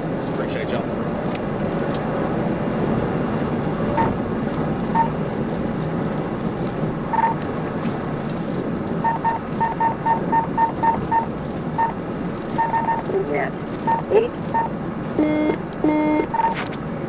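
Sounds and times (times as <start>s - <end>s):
road and engine noise in car: 0.0s - 17.0s
short electronic beeps: 7.1s - 7.4s, 9.0s - 12.0s, 12.6s - 13.2s, 13.9s - 16.6s.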